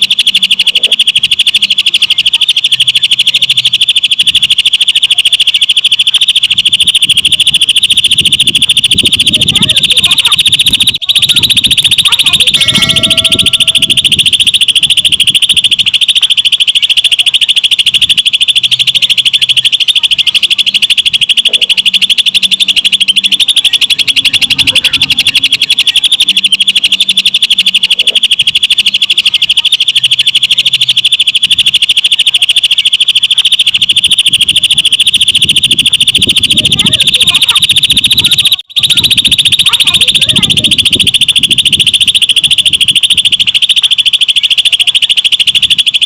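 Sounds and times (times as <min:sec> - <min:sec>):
bird singing fast trill: 0:00.0 - 0:46.0.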